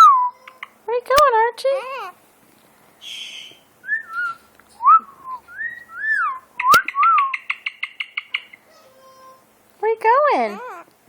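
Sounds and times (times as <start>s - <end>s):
parrot chattering: 0.3s - 0.8s, 1.7s - 2.2s, 3.0s - 4.4s, 5.6s - 9.5s, 10.4s - 10.9s
parrot whistling: 3.0s - 8.5s.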